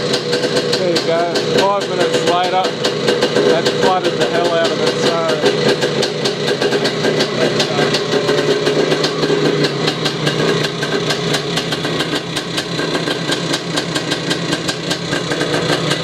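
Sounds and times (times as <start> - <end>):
two-stroke engine idling: 0.0 - 16.0.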